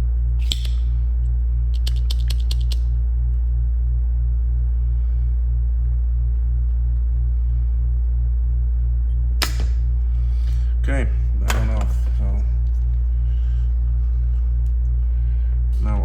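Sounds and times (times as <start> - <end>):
air conditioner humming: 0.0 - 16.0
solder sucker snapping: 0.4 - 0.8, 9.4 - 10.6
small clicks: 1.7 - 2.9.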